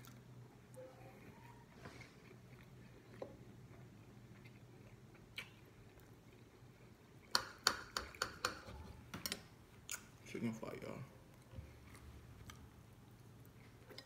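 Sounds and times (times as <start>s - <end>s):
chewing food: 0.0s - 7.4s
low steady hum: 0.0s - 14.0s.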